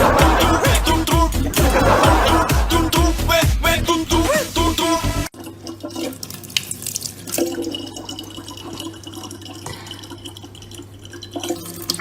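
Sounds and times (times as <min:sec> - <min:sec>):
dance-pop music: 0:00.0 - 0:05.3
water trickling from tap: 0:05.3 - 0:12.0.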